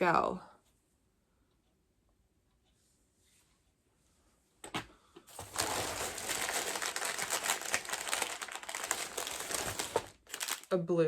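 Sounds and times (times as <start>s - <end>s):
packaging crinkling: 5.3s - 10.8s.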